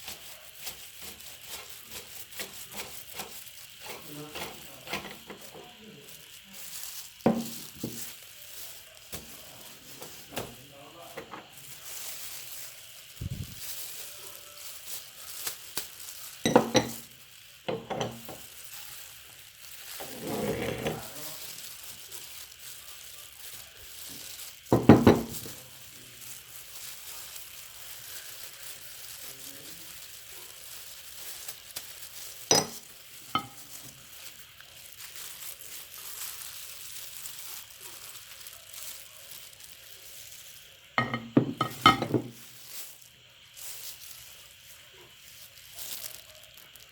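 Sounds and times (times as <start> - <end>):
meat grinder squishing banana: 0.0 - 41.6, 42.4 - 46.9
steady hiss: 0.0 - 46.9
knocks and clinks: 16.5 - 17.0, 17.7 - 18.4, 32.5 - 32.8, 41.0 - 42.4.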